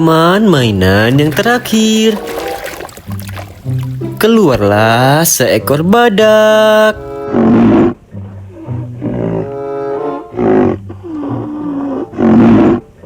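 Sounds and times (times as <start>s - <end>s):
background music: 0.0s - 13.0s
animal roars and growls: 10.3s - 12.9s.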